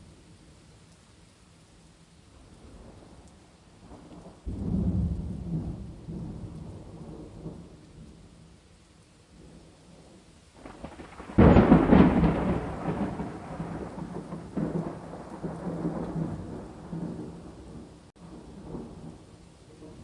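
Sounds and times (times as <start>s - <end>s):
rain falling: 0.0s - 20.0s
thunder rolling: 4.5s - 7.7s, 10.6s - 20.0s.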